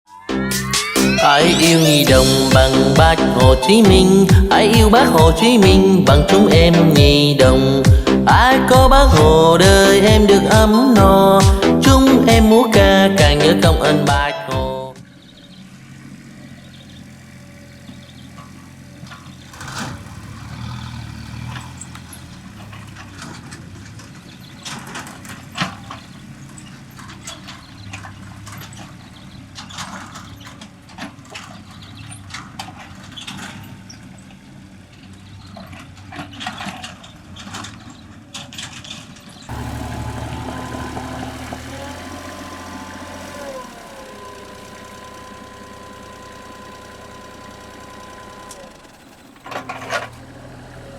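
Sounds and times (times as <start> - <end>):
excavator diesel engine running: 0.3 - 38.3, 39.4 - 50.9
whining tone sliding downward: 6.6 - 12.7, 39.5 - 50.1.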